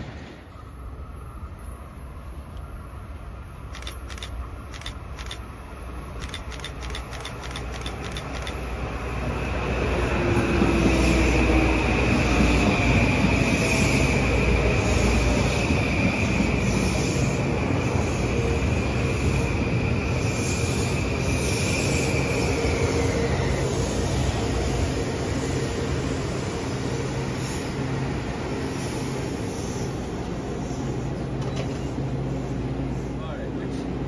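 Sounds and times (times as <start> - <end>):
high steady train whine: 0.0 - 34.0
train wheel-on-rail rumble: 0.0 - 34.0
sharp clicks: 3.7 - 5.5, 6.2 - 8.7.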